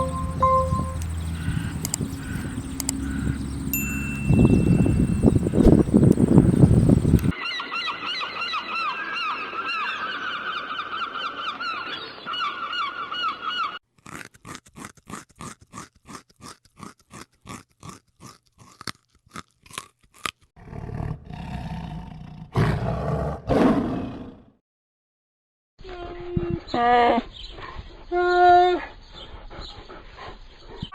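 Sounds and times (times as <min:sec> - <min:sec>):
low deep animal calls: 0:00.0 - 0:03.7
chorus of bird calls: 0:00.0 - 0:03.8, 0:05.2 - 0:13.8
sharp animal clicks: 0:01.0 - 0:03.2, 0:07.1 - 0:07.3.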